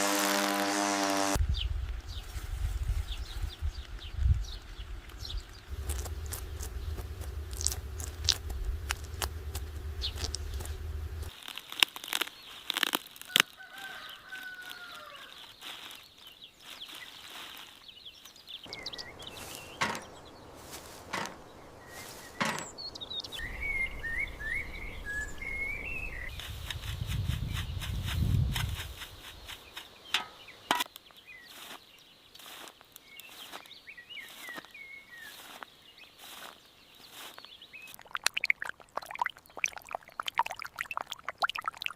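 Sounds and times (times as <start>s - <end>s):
background hum: 0.0s - 11.3s, 18.7s - 30.7s
sharp clicks and knocks: 19.8s - 20.2s, 21.0s - 21.4s, 22.4s - 22.8s, 30.1s - 30.9s.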